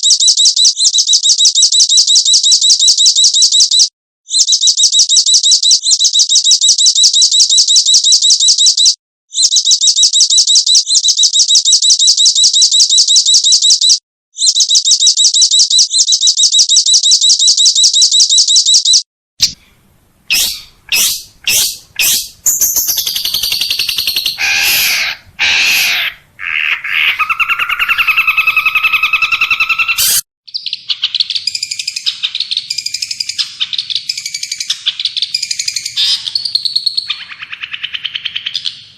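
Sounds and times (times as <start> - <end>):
bird calls and whistles: 0.0 - 19.6, 20.3 - 38.9
fast high bird trill: 20.3 - 38.6
bird chattering: 20.3 - 38.9.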